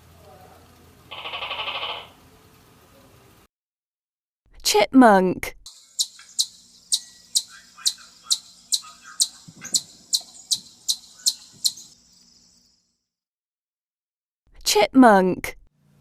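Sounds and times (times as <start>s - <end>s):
chipmunk alarm call: 1.1s - 2.2s, 5.7s - 12.4s.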